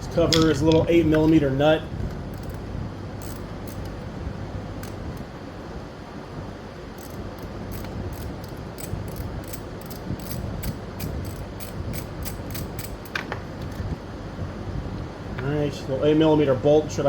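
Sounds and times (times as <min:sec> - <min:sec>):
hand ratchet clicking: 0:02.3 - 0:02.6, 0:03.2 - 0:04.0, 0:04.8 - 0:05.3, 0:06.9 - 0:13.8.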